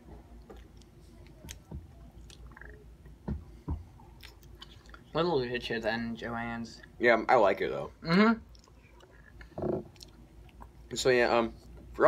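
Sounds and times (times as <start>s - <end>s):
person chewing: 0.4s - 2.8s, 4.0s - 5.1s, 8.4s - 10.9s
mouth clicks and smacks: 0.5s - 3.2s, 4.2s - 5.1s.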